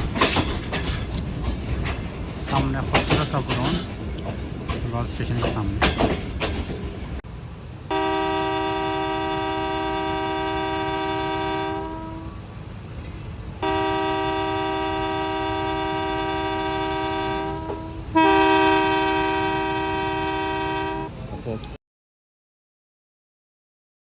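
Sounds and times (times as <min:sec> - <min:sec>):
train horn blasts: 0:07.9 - 0:12.4, 0:13.6 - 0:21.2.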